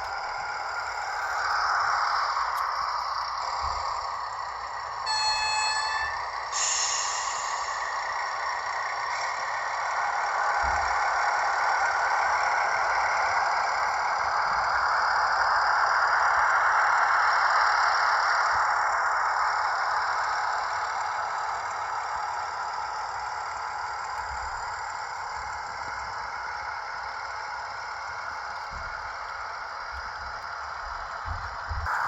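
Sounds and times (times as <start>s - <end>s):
model train running on track: 0.0s - 32.0s
short horn tone: 5.1s - 7.0s
brief high hiss: 6.5s - 7.8s.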